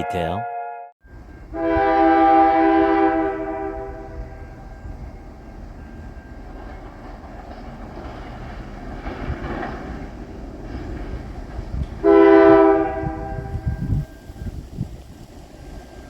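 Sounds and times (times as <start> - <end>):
train horn chord: 0.0 - 4.8, 12.0 - 13.9
train rumbling: 1.0 - 16.0.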